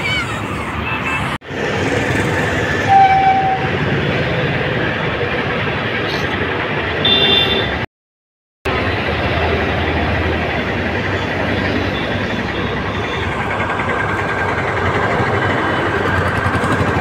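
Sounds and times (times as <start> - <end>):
vehicle running noise: 0.0 - 7.9, 8.7 - 17.0
short horn toot: 2.9 - 3.7.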